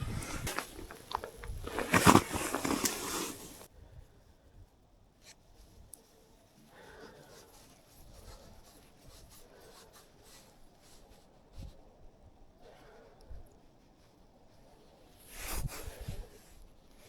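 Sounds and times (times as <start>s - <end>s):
faint rustling: 0.0s - 3.7s.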